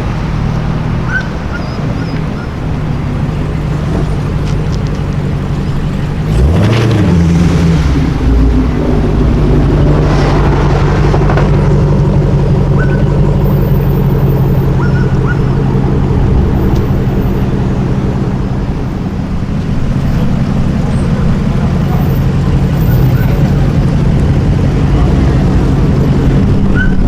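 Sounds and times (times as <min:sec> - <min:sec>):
sports car engine revving: 0:00.0 - 0:27.0.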